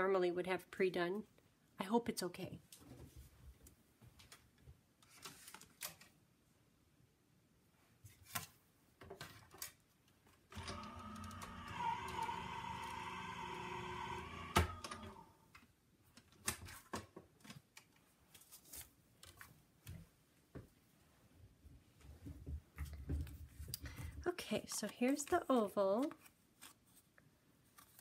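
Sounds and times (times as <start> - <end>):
paper clicks and rustles: 5.0 - 6.2, 16.2 - 19.5, 24.6 - 28.0
die-cutting machine whirring: 10.6 - 15.2.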